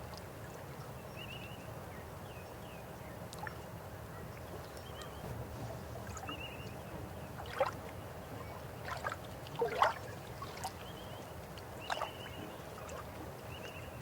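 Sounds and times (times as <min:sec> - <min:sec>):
river water flowing: 0:02.9 - 0:14.0
water gurgles and splashes: 0:07.4 - 0:11.0.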